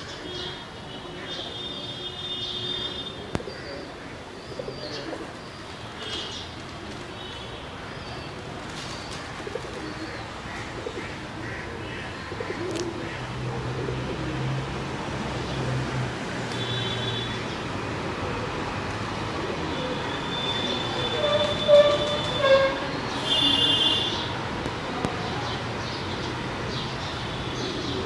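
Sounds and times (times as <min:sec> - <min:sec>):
outdoor background noise: 0:00.0 - 0:28.0
pigeons cooing: 0:03.3 - 0:05.4, 0:09.1 - 0:14.6, 0:18.1 - 0:22.7.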